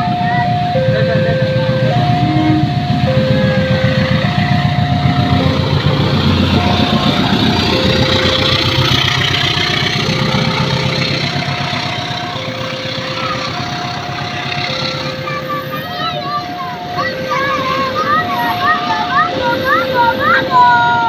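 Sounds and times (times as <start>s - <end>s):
heavy engine rumbling: 0.0s - 21.0s
level crossing two-tone alarm: 0.0s - 21.0s.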